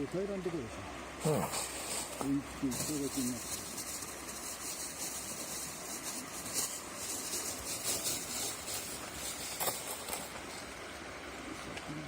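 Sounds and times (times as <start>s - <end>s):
rustling camping gear: 1.2s - 10.8s.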